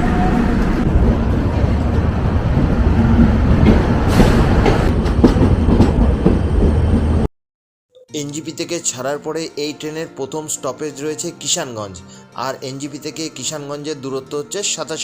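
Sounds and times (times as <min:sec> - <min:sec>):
train wheels rumbling on rails: 0:00.0 - 0:07.3
knocks and clatter: 0:03.1 - 0:07.3.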